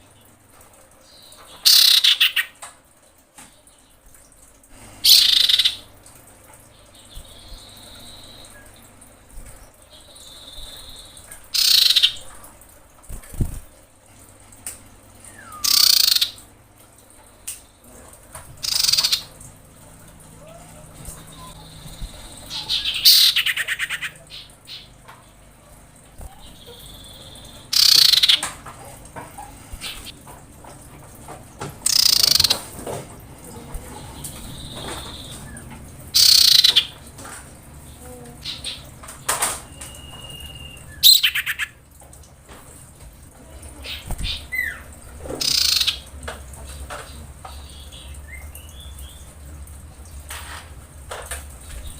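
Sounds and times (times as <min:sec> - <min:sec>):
bird harsh rattling trills: 0:01.1 - 0:02.6, 0:05.0 - 0:05.8, 0:10.1 - 0:12.3, 0:15.3 - 0:16.4, 0:18.6 - 0:19.4, 0:20.4 - 0:25.0, 0:26.2 - 0:28.4, 0:31.8 - 0:32.7, 0:34.2 - 0:37.0, 0:39.7 - 0:41.8, 0:43.8 - 0:46.0.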